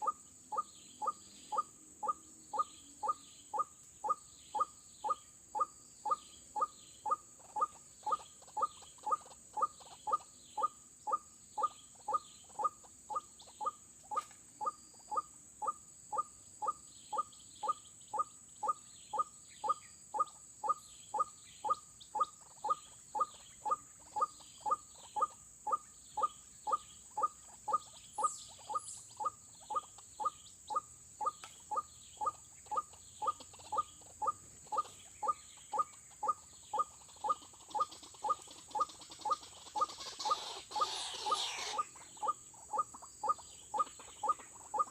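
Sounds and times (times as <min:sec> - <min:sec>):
waterhen calls: 0:30.7 - 0:44.9.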